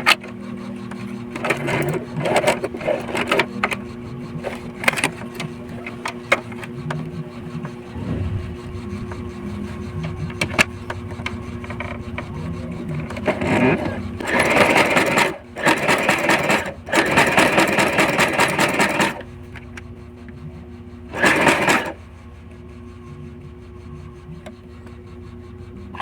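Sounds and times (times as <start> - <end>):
sewing machine stitching: 1.3 - 19.3, 21.1 - 22.0.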